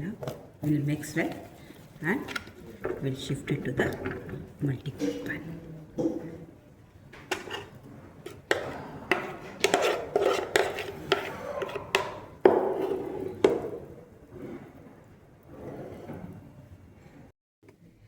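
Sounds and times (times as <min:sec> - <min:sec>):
spoon scraping against a bowl: 0:07.3 - 0:13.7.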